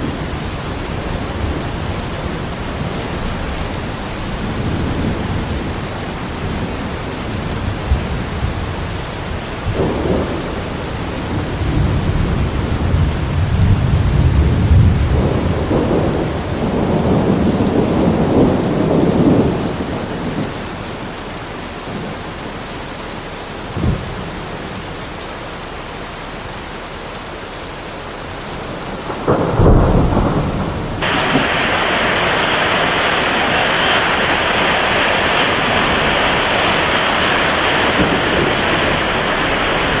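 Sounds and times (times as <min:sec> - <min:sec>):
steady rain: 0:00.0 - 0:40.0
thunder rumbling: 0:09.6 - 0:20.5, 0:28.6 - 0:40.0
thunder clap: 0:28.8 - 0:40.0.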